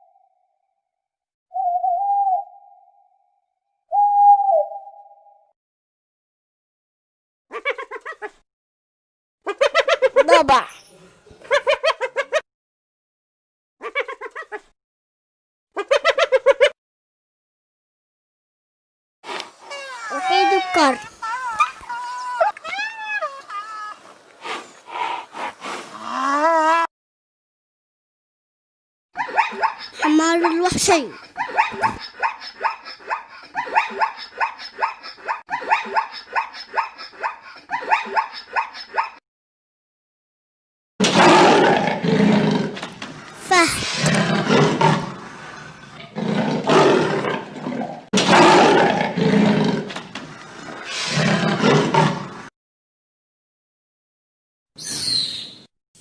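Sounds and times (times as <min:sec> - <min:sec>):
zebra barking yelps: 0:31.4 - 0:39.2.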